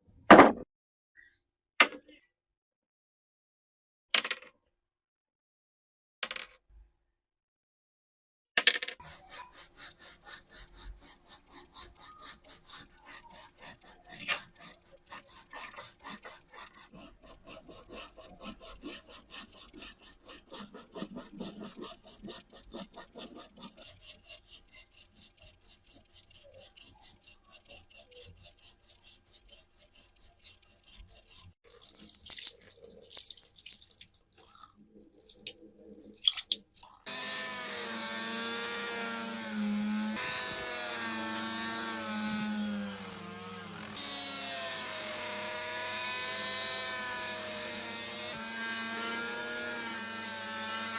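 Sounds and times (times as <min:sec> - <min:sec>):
brush scrubbing rusty metal: 0:09.0 - 0:31.6
irregular rubbing sounds: 0:09.0 - 0:31.8.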